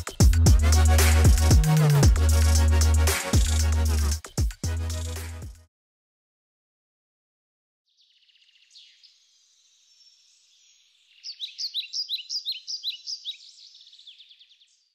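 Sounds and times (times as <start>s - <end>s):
bird chirping: 0.0s - 0.4s, 7.9s - 14.9s.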